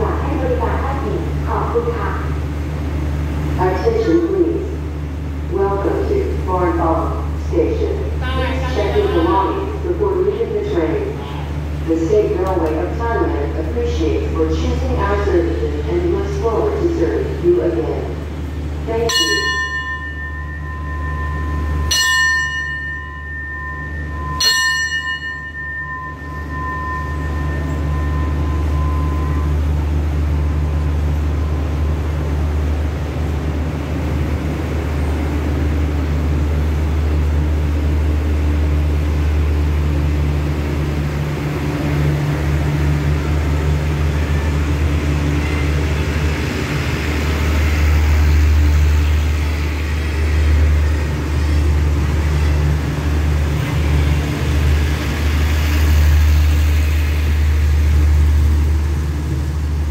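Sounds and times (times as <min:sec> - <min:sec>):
diesel locomotive droning: 0:00.0 - 0:59.9
station bell ringing: 0:18.8 - 0:31.8.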